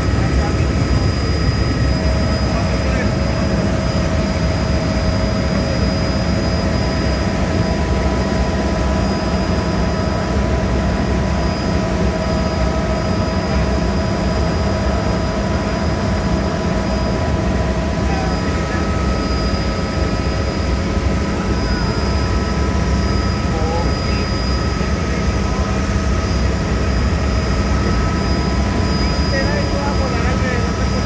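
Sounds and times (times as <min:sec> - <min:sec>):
helicopter rotor and engine rumble: 0:00.0 - 0:31.0
high turbine whine: 0:00.0 - 0:31.0.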